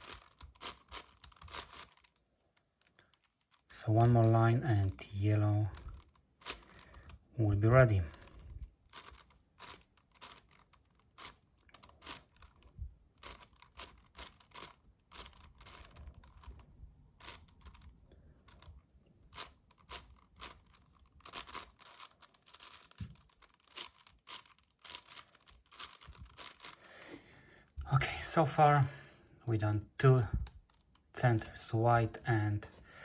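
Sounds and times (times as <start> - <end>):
puzzle cube clicking as twisted: 0.0 - 3.7, 5.8 - 7.3, 8.2 - 27.1.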